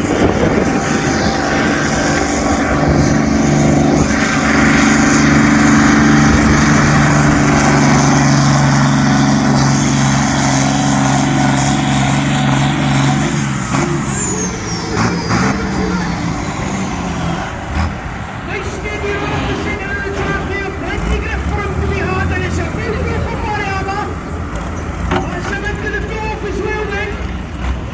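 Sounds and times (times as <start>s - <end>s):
tractor engine running hard: 0.0s - 27.9s.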